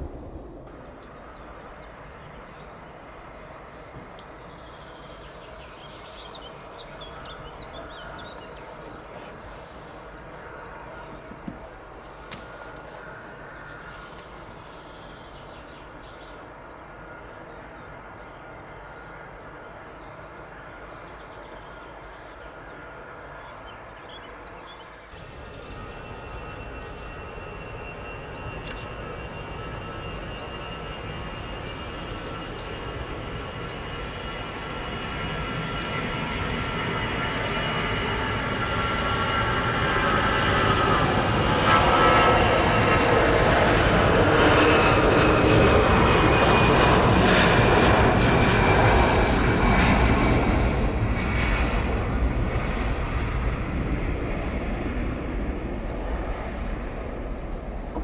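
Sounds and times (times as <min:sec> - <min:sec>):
jet engines whining: 0:00.0 - 0:19.4, 0:25.1 - 0:58.0.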